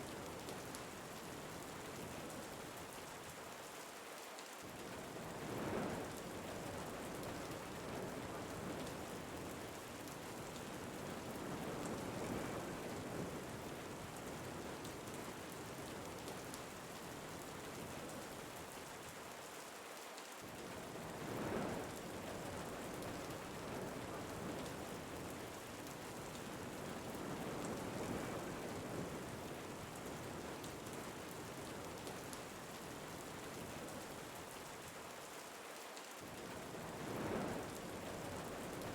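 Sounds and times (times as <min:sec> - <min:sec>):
steady rain falling: 0:00.0 - 0:38.9
wind gusts: 0:20.6 - 0:34.5, 0:36.2 - 0:38.9.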